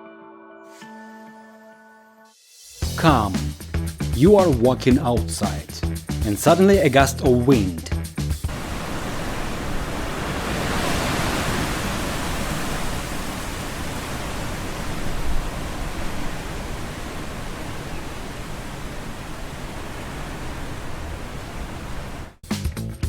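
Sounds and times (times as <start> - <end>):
strong gusting wind: 8.5 - 22.4.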